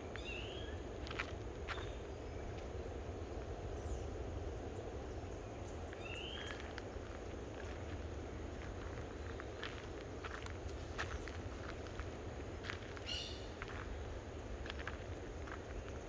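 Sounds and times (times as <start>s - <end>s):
footsteps on forest trail: 1.0s - 2.0s, 6.6s - 16.0s.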